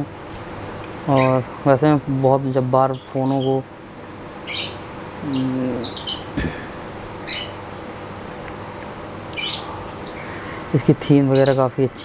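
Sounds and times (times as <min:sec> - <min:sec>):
small birds chirping: 0:01.0 - 0:03.7, 0:04.4 - 0:12.0
man humming: 0:05.2 - 0:06.9.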